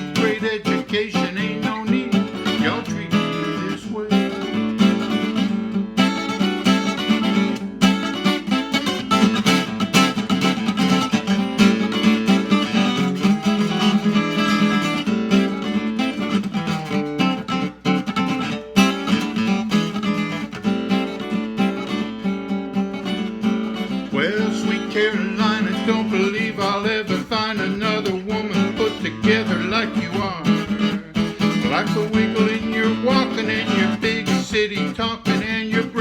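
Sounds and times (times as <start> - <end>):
solo rockabilly guitar: 0.0 - 36.0.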